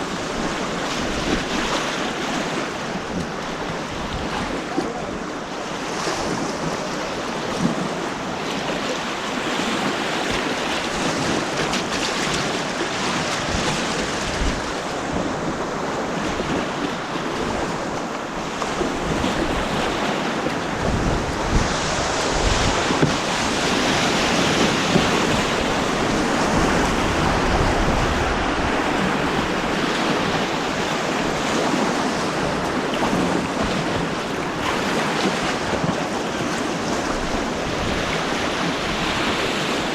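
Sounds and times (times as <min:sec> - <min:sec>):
rushing white water: 0:00.0 - 0:39.9
wind buffeting on microphone: 0:09.1 - 0:39.9.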